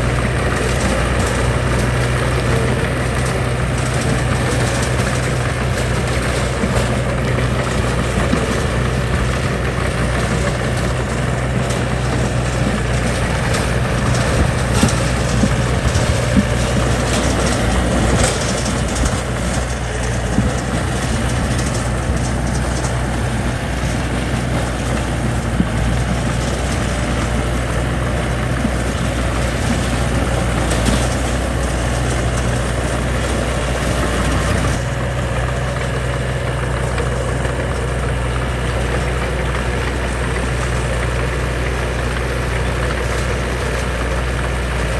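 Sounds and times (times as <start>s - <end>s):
heavy machine engine running: 0.0s - 44.9s.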